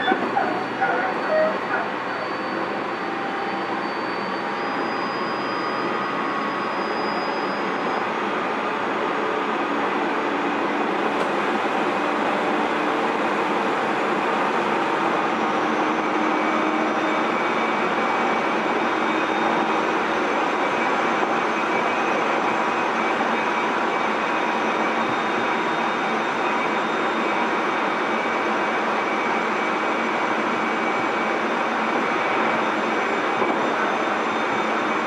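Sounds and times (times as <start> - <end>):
train wheels rumbling on rail: 7.6 - 35.0.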